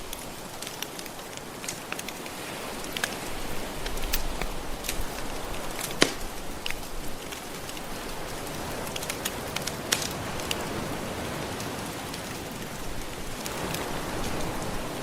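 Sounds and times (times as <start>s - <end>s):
wood fire crackling: 2.9s - 4.7s.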